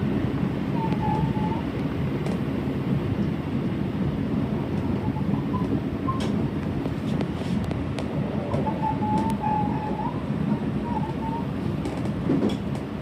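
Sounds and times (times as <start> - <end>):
train wheels rumbling on rail: 0.0 - 13.0
thin squeal: 8.6 - 11.5.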